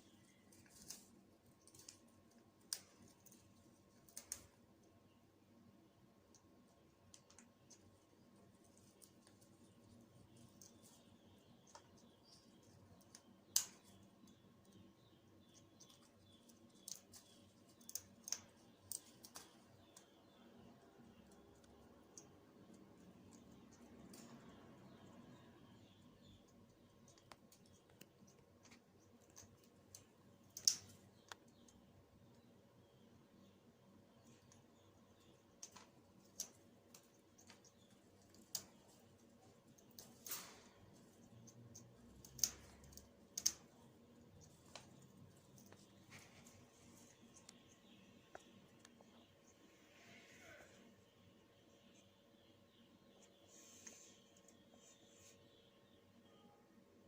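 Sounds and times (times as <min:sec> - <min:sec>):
parrot beak clicking on leaves: 0:13.0 - 0:14.1, 0:15.8 - 0:20.1, 0:29.3 - 0:31.5, 0:41.4 - 0:43.7.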